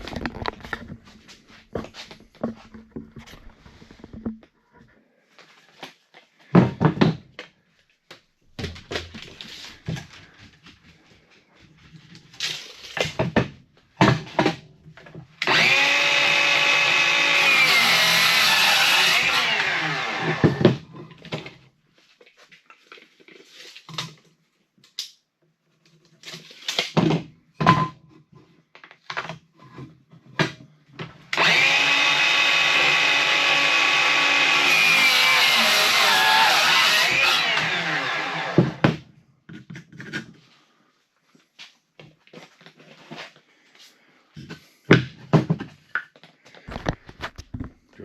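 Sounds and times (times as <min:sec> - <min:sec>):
electric saw cutting wood: 0:15.4 - 0:20.8, 0:31.3 - 0:39.0.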